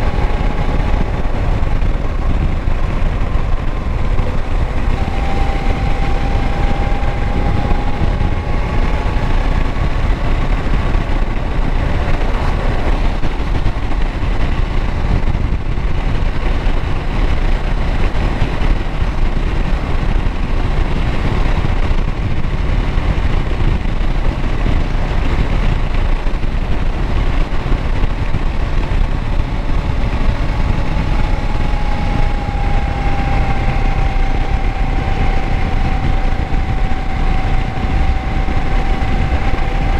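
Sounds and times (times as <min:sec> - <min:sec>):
faint high whine: 0:00.0 - 0:13.4, 0:29.0 - 0:39.9
motorcycle engine running: 0:00.0 - 0:39.9.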